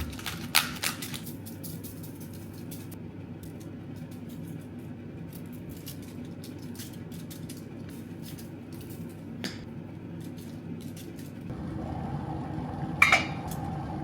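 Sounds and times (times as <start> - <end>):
steady low hum: 11.5 - 14.0.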